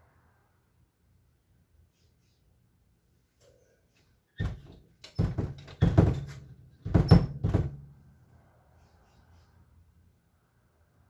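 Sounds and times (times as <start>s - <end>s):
ringing thumps and knocks: 4.4s - 8.0s.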